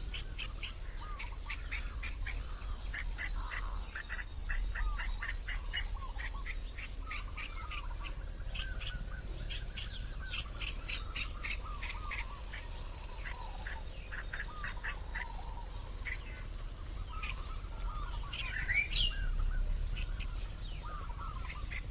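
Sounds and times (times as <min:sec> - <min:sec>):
bird chirps: 0:07.0 - 0:21.9.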